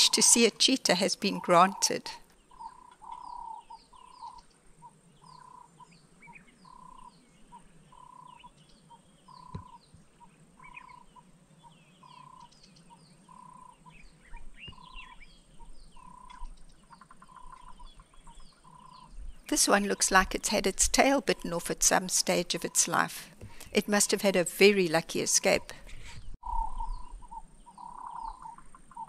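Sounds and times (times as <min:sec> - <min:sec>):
high bird chirps: 0:12.0 - 0:19.2.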